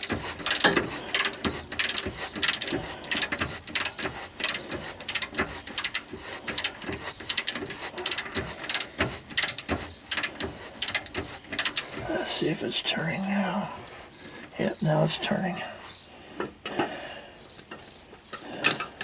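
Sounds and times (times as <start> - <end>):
ratchet wrench clicking: 0.0 - 12.0.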